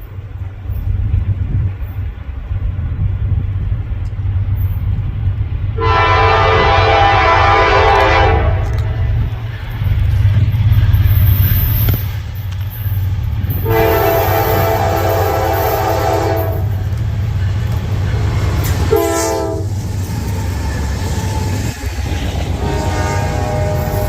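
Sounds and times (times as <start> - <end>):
train rumbling past: 0.0 - 24.0
locomotive air horn blasts: 5.8 - 9.1, 13.6 - 16.8, 18.8 - 19.8, 22.4 - 24.0.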